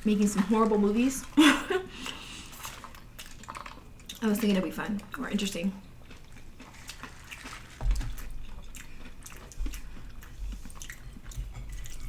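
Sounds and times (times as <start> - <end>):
biting and chewing food: 2.1 - 4.6, 5.8 - 12.0.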